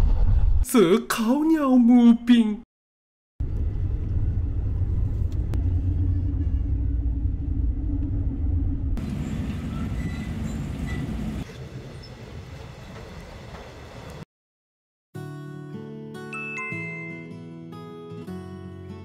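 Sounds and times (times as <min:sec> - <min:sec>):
train rumbling: 0:03.4 - 0:14.2.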